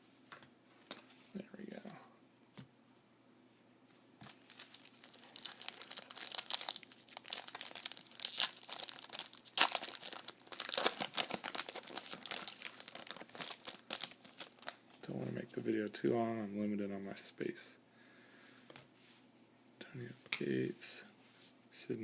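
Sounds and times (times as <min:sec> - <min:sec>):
plastic wrapper tearing and crinkling: 0:04.3 - 0:15.0.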